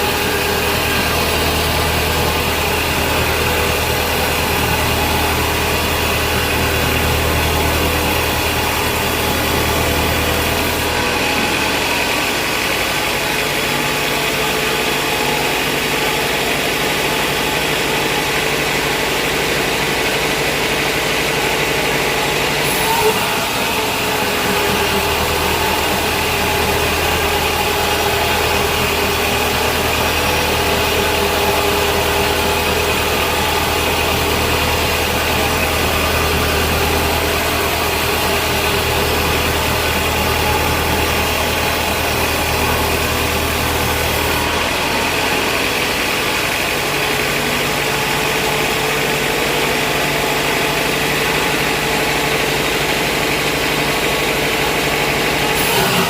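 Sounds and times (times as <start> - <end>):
band saw machinery droning: 0.0 - 56.0.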